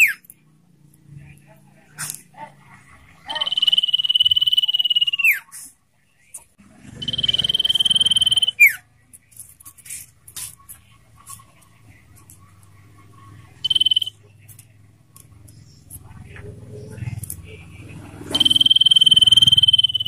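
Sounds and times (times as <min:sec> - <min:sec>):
bird trilled whistle: 0:03.3 - 0:05.4, 0:07.0 - 0:08.8, 0:13.6 - 0:14.1, 0:18.3 - 0:20.0.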